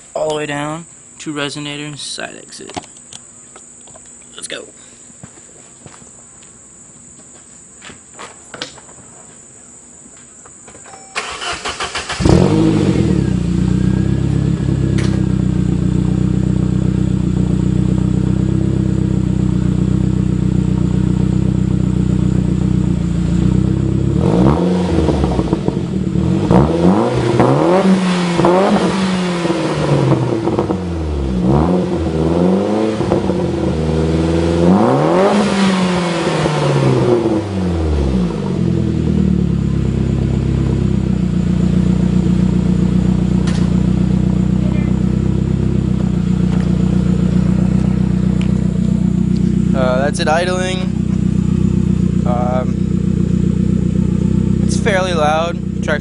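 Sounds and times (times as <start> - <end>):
car engine cranking: 11.0 - 16.0
car engine idling: 11.2 - 56.0
car engine revving: 11.2 - 56.0.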